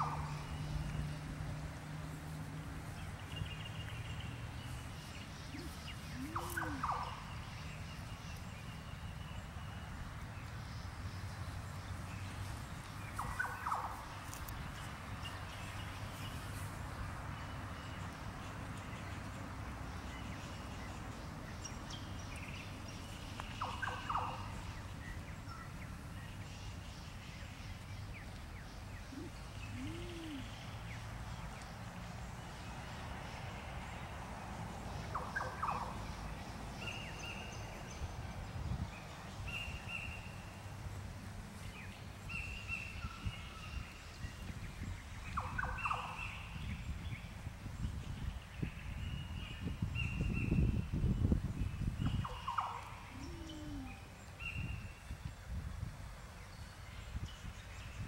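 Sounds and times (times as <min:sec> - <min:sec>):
short bird calls: 0:29.1 - 0:30.7.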